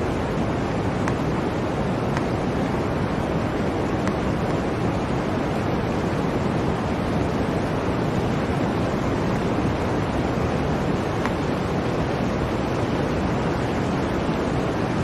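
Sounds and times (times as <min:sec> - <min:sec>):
blizzard wind blowing: 0:00.0 - 0:15.0.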